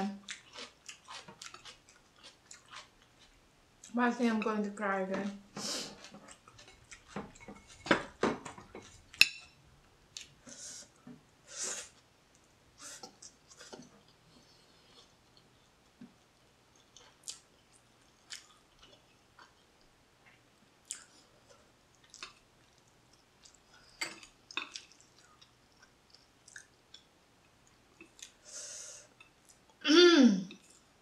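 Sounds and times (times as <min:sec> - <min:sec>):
chewing noodles: 0:00.2 - 0:04.0, 0:05.8 - 0:07.8, 0:13.0 - 0:28.4.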